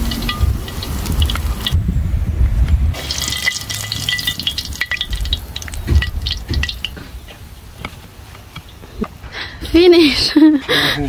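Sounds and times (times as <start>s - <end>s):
sausages frying crackling oil: 0.0s - 1.8s, 2.9s - 8.7s.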